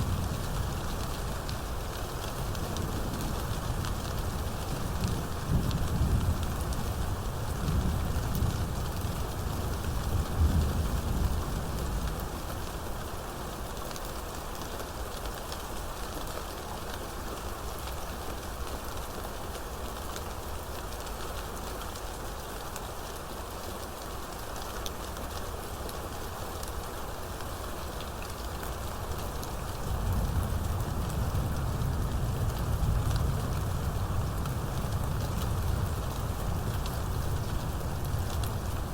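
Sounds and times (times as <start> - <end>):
low rumble of thunder: 0.0 - 12.4, 29.5 - 38.9
steady rain falling: 0.0 - 38.9.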